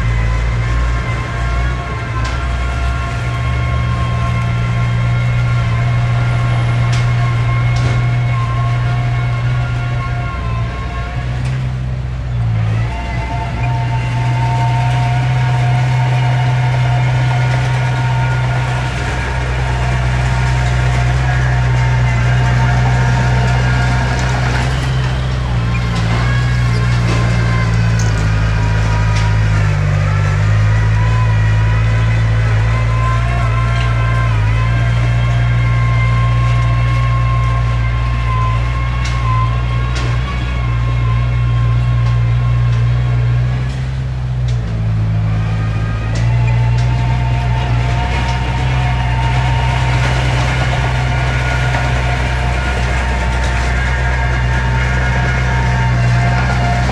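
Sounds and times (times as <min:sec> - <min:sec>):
diesel engine running: 0:00.0 - 0:56.9
steady whine: 0:45.5 - 0:56.9.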